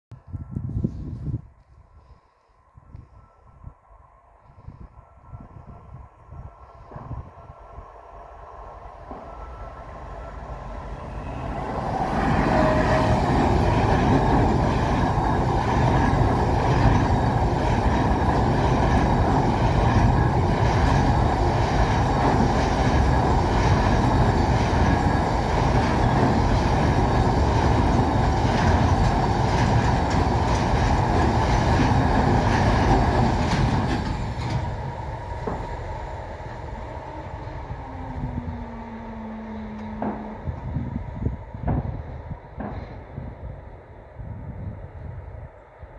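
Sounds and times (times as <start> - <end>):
train wheels on rails: 8.3 - 43.8
low hum falling in pitch: 36.4 - 41.4.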